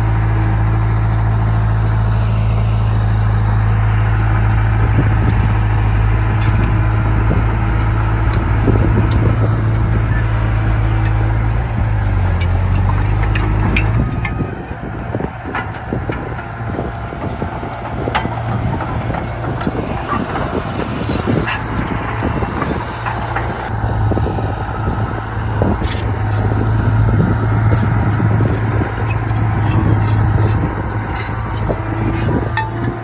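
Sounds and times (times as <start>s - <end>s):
heavy diesel machine droning: 0.0s - 33.0s
metal clanks and knocks: 5.0s - 23.7s, 25.8s - 33.0s.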